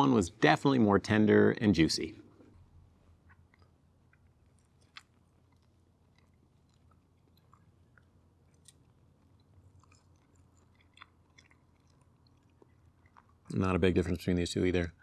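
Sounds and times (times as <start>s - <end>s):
low steady hum: 0.0s - 15.0s
faint chewing: 2.3s - 15.0s
wet mouth clicks: 3.2s - 13.6s.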